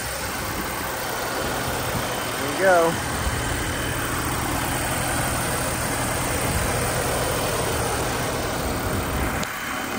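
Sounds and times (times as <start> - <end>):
car engine idling: 0.0 - 9.9.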